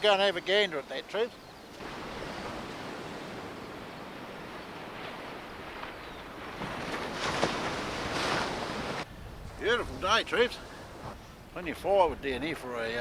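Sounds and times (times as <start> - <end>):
surf washing on beach: 1.7 - 12.0
wind on microphone: 1.7 - 13.0.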